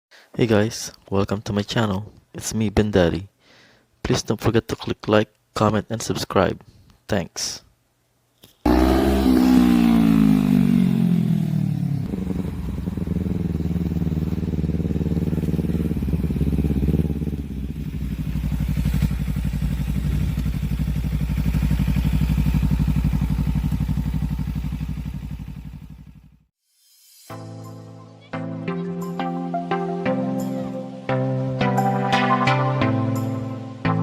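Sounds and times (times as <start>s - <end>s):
car engine idling: 12.0s - 26.3s.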